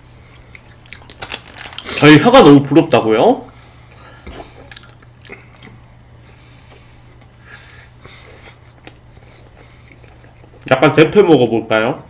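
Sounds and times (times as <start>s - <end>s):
steady low hum: 0.0s - 12.0s
chewing and mouth sounds: 0.2s - 2.0s, 3.9s - 10.7s.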